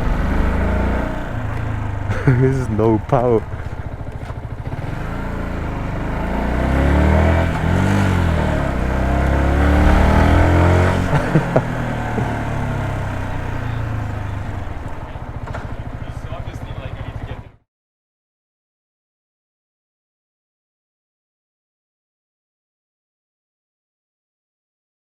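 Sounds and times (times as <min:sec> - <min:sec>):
motorcycle engine accelerating: 0:00.0 - 0:17.6.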